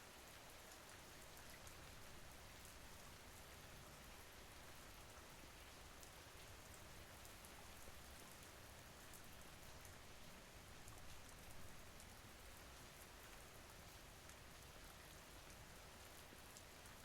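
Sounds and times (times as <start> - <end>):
faint rain falling: 0.0 - 17.0
light raindrop ticks: 0.2 - 17.0.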